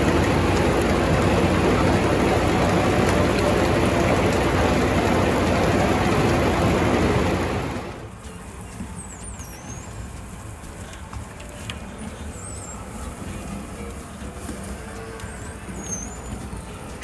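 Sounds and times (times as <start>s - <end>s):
farm machinery engine running: 0.0s - 8.6s.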